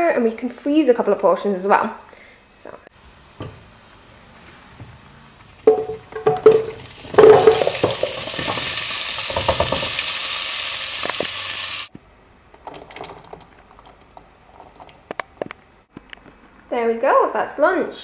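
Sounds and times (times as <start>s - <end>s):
loud sizzling in oil: 3.0s - 11.9s
wooden spoon knocking on pot: 5.6s - 10.0s.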